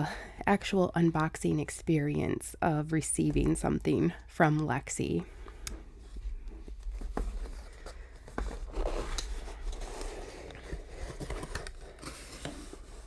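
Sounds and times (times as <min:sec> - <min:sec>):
packaging and paper rustling: 0:06.8 - 0:13.0.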